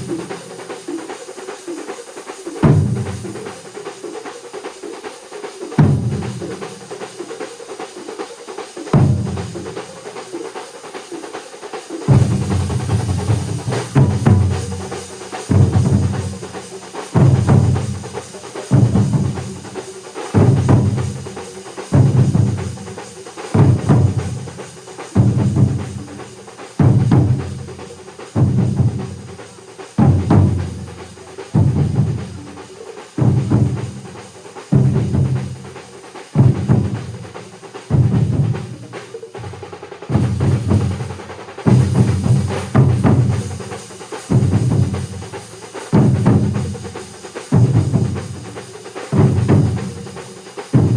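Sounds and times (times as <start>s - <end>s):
ensemble of drums playing: 0.0s - 50.9s.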